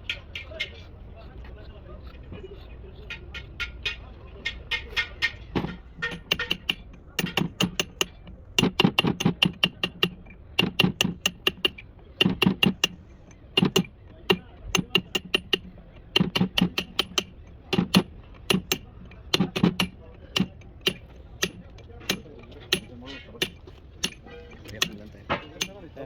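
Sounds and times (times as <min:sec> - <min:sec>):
hammer tapping on metal: 0:00.0 - 0:00.9, 0:02.3 - 0:26.0.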